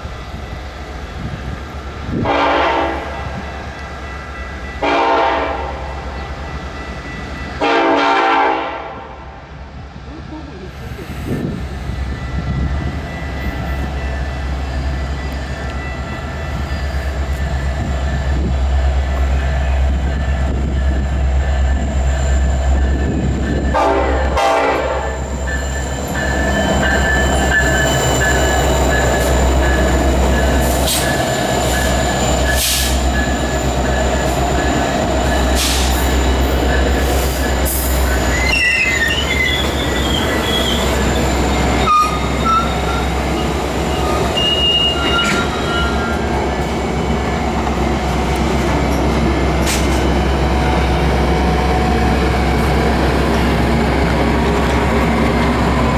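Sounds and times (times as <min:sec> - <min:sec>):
diesel locomotive rumbling: 0:00.0 - 0:55.9
train horn blast: 0:02.2 - 0:03.4, 0:04.8 - 0:06.0, 0:07.6 - 0:09.2, 0:23.7 - 0:25.2, 0:41.8 - 0:43.0
wheels squealing on rail: 0:10.8 - 0:55.9.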